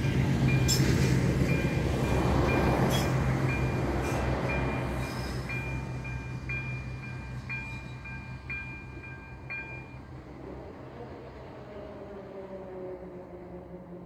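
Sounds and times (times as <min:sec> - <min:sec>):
crossing warning bell ringing: 0:00.0 - 0:10.1
train rumbling past: 0:00.0 - 0:14.0.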